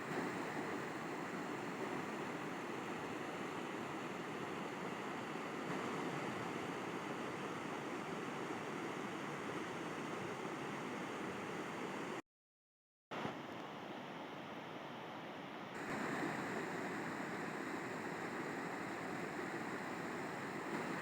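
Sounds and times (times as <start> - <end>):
river water rushing: 0.0 - 12.1, 15.8 - 21.0.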